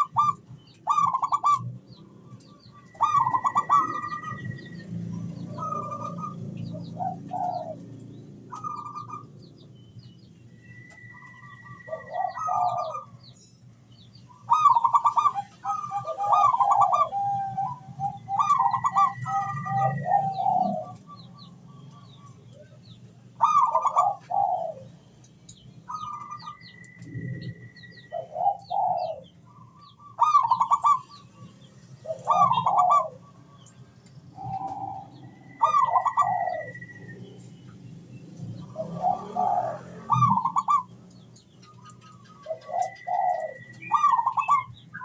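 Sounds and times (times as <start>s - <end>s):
dove cooing: 0.0s - 9.3s, 10.7s - 13.2s, 14.4s - 22.6s, 23.3s - 25.0s, 25.9s - 31.3s, 32.0s - 33.6s, 34.3s - 37.4s, 38.4s - 45.0s
small birds chirping: 0.0s - 45.0s.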